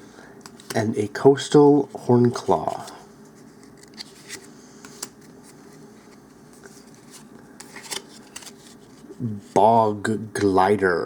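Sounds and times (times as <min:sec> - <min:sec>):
trading cards handled and flipped: 0:00.4 - 0:00.9, 0:02.2 - 0:09.2.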